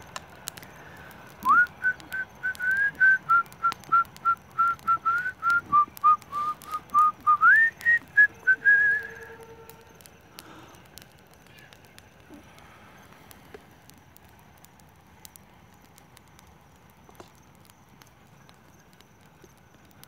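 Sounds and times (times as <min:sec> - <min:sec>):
campfire crackling: 0:00.0 - 0:20.0
person whistling a tune: 0:01.4 - 0:09.5.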